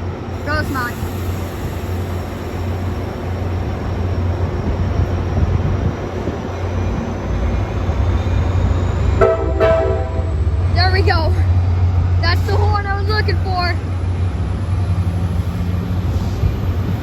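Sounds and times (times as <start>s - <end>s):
diesel train engine rumble: 0.0s - 17.0s
train air horn blast: 9.2s - 10.4s.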